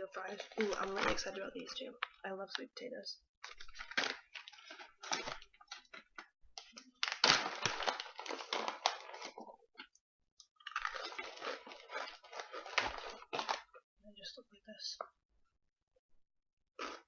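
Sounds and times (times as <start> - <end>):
plastic snack pouch crinkling: 0.0 - 2.2, 3.4 - 9.9, 10.6 - 13.8.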